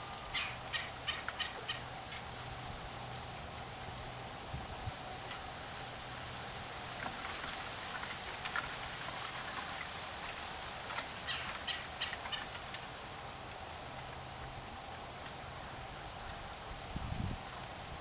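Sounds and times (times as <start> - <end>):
woodpecker calls: 0.3 - 2.4, 11.3 - 12.5.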